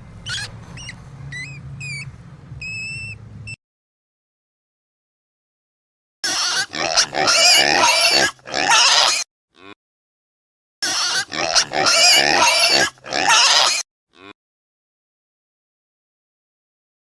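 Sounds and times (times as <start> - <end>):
animal's loud rough call: 6.2 - 9.7, 10.8 - 14.3.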